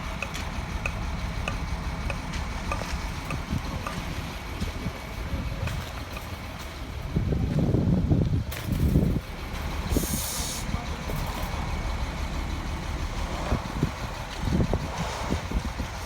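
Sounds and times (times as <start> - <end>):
concrete pump engine rumbling: 0.0 - 16.0
air hissing: 9.9 - 10.8.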